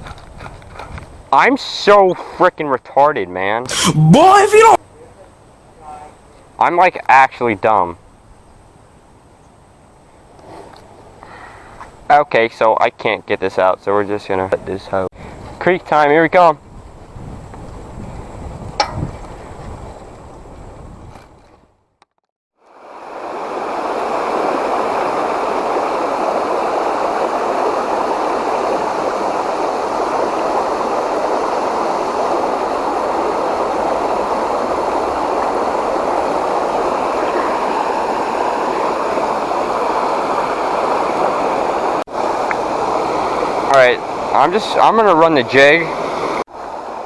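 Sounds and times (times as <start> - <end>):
creek water flowing: 22.7 - 47.0.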